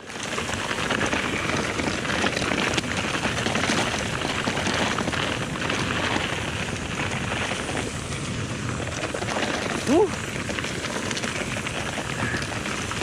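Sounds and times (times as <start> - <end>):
bike rattling: 0.0 - 13.0
tyres crackling over gravel: 0.0 - 13.0.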